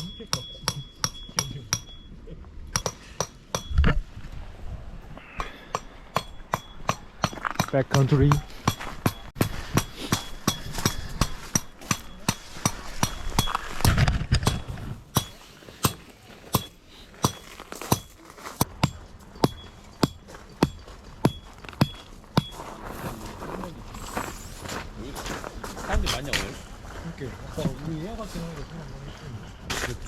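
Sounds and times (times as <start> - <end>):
hammer striking metal tent peg: 0.0 - 2.0, 2.7 - 3.9, 5.3 - 16.0.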